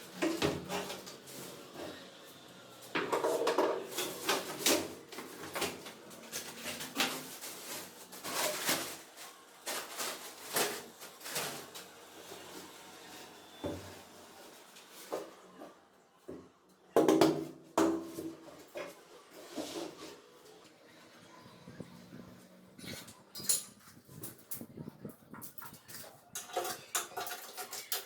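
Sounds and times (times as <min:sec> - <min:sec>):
tools knocking and scraping: 0:03.0 - 0:07.2, 0:22.8 - 0:28.0.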